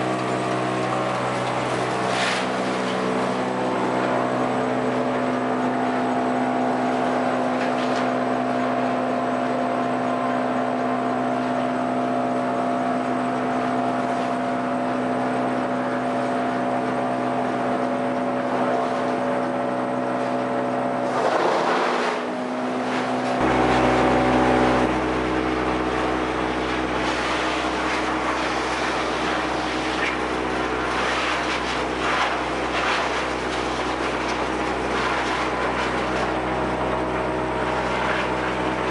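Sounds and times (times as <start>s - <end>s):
sawmill machinery humming: 0.0s - 38.9s
deep low hum: 23.4s - 28.6s.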